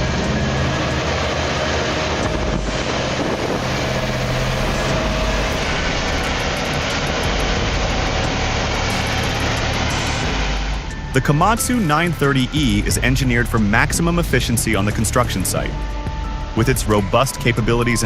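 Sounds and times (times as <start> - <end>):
dense rushing noise: 0.0 - 18.0
heavy machine engine running: 0.0 - 18.0.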